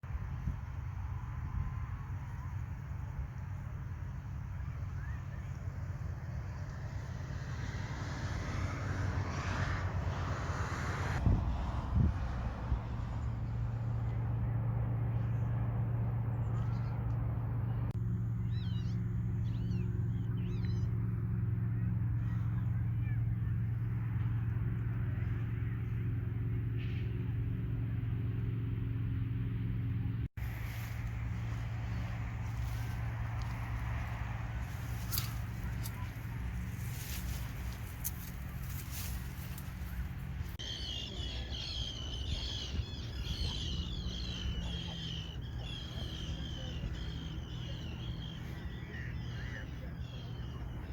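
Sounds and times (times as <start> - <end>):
low engine drone: 0.0 - 50.9
steady low rumble: 9.8 - 50.9
bird calls: 18.4 - 20.9, 30.6 - 50.9.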